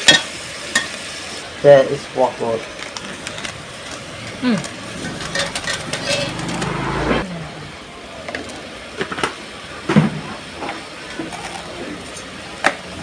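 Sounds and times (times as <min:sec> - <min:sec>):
small engine running: 0:04.1 - 0:08.1.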